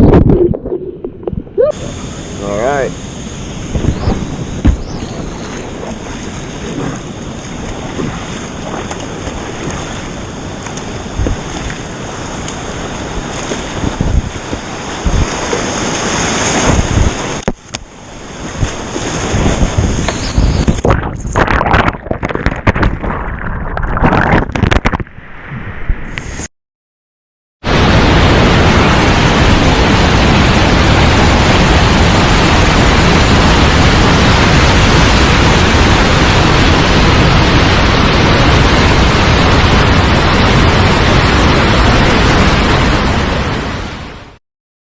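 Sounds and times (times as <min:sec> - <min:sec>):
wind buffeting microphone: 0:00.0 - 0:26.1
whitewater splashing: 0:00.2 - 0:24.9, 0:27.7 - 0:44.2
rushing creek water: 0:01.2 - 0:22.9
sharp thump: 0:04.1 - 0:04.9
sharp knocks and bumps: 0:04.6 - 0:04.9.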